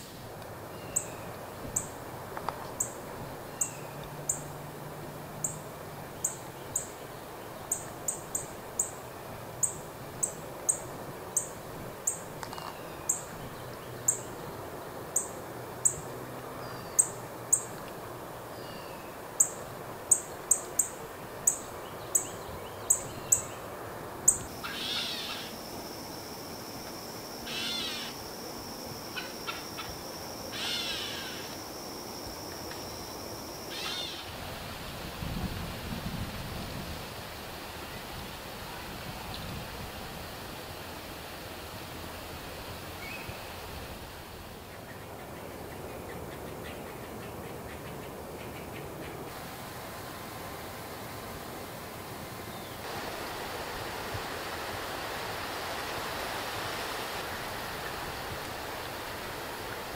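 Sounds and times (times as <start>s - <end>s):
bird chirping very high: 24.3s - 25.6s, 27.4s - 28.2s
high bird trill: 24.3s - 26.2s, 27.1s - 32.0s, 32.8s - 34.3s
harsh raspy bird calls: 24.6s - 25.6s, 27.5s - 28.2s, 30.5s - 31.5s, 33.7s - 34.3s.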